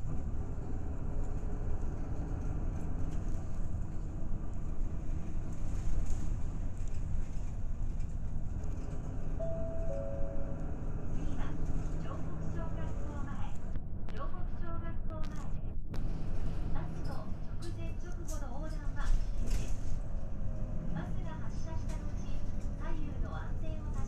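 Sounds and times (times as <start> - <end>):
bus engine and road rumble: 0.0 - 24.0
two-note falling tone: 9.4 - 10.8.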